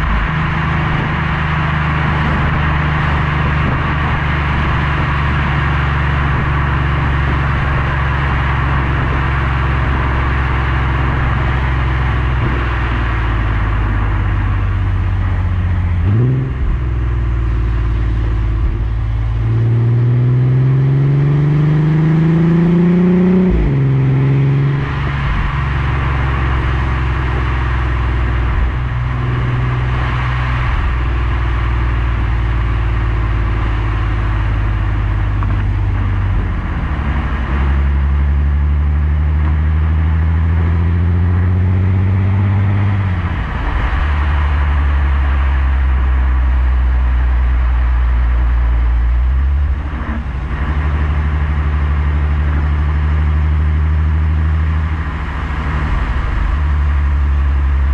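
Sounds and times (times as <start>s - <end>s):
car engine accelerating: 0.0s - 57.9s.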